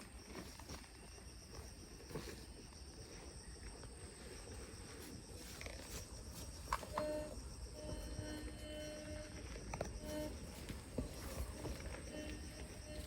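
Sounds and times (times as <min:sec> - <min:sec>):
insects droning: 0:00.0 - 0:13.0
steady pitched tone: 0:06.8 - 0:13.0.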